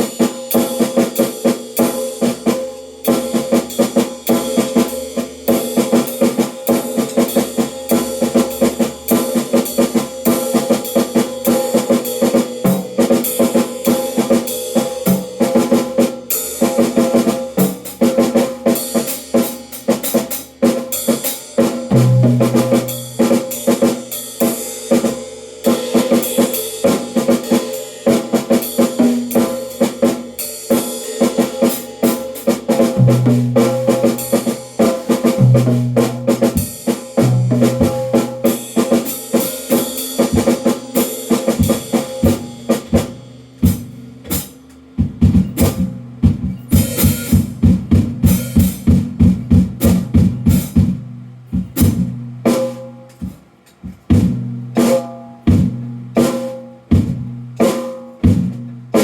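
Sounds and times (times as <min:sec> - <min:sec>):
drum kit playing: 0:00.0 - 0:59.0.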